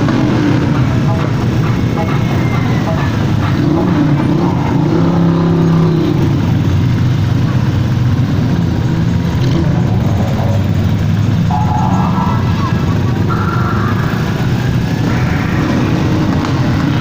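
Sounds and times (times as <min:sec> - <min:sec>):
motorcycle engines running: 0:00.0 - 0:17.0.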